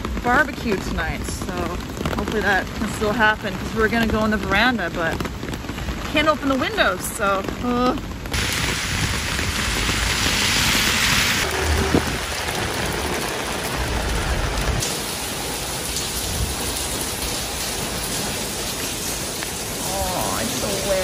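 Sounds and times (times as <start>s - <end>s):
heavy rain pouring: 0.0s - 21.0s
low rumble: 8.8s - 14.8s.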